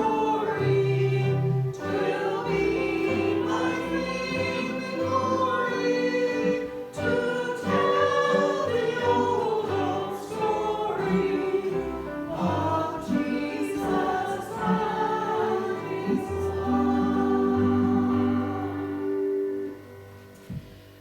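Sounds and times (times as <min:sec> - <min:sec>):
choir singing a hymn: 0:00.0 - 0:20.7
instrumental accompaniment: 0:00.0 - 0:21.0.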